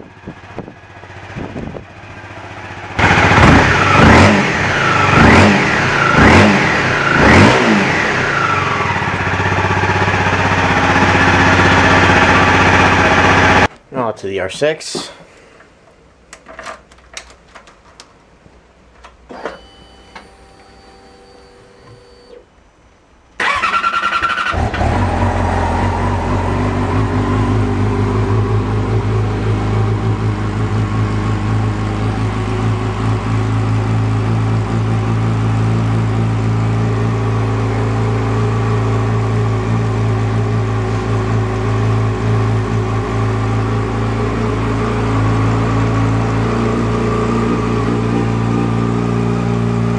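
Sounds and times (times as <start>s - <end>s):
motorcycle engine running: 0.0s - 13.7s, 24.5s - 49.9s
motorcycle starter cranking: 23.4s - 24.9s.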